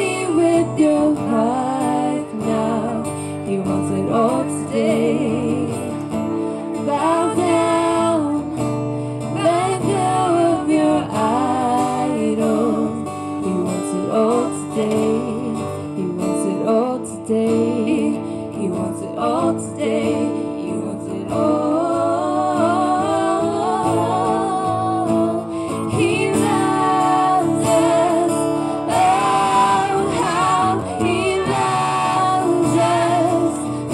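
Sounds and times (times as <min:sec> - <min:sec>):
person singing a worship song: 0:00.0 - 0:06.0, 0:16.6 - 0:33.9
acoustic guitar: 0:00.0 - 0:33.9.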